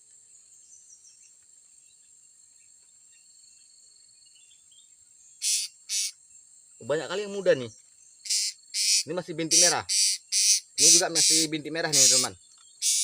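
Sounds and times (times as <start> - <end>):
faint chirps: 0.0 - 13.0
insects shrilling: 5.2 - 13.0
harsh hissing bursts: 5.4 - 6.2, 8.3 - 13.0.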